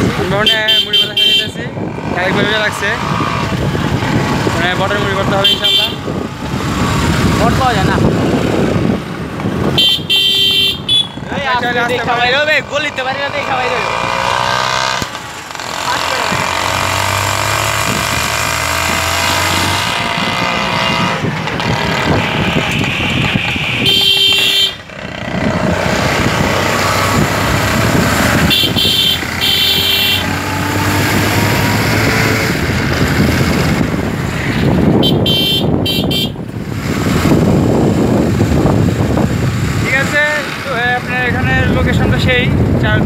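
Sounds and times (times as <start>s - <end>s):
motorcycle engine and road noise: 0.0s - 43.0s
vehicle horn honks: 0.4s - 1.6s, 5.4s - 6.0s, 9.8s - 11.3s, 22.7s - 24.9s, 28.4s - 30.3s, 35.0s - 36.4s
wind on microphone: 1.4s - 12.3s, 16.3s - 40.3s, 41.0s - 43.0s.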